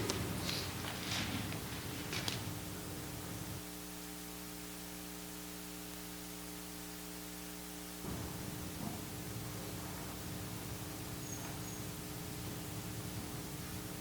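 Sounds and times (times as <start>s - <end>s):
faint low rustling: 0.0s - 3.7s
electrical hum with hiss: 0.0s - 14.0s.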